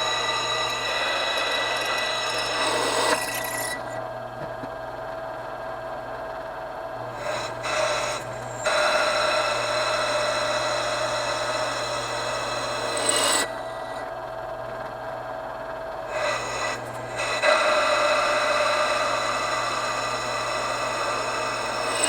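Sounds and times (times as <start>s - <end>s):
drill bit grinding into metal: 0.0s - 4.1s, 7.1s - 14.0s, 16.1s - 22.0s.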